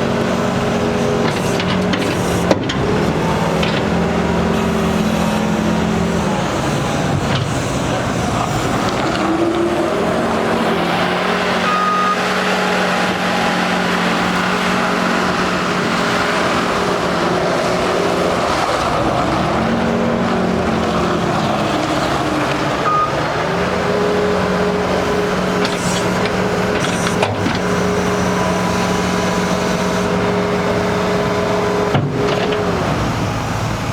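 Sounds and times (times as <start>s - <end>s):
diesel engine revving: 0.0s - 33.9s.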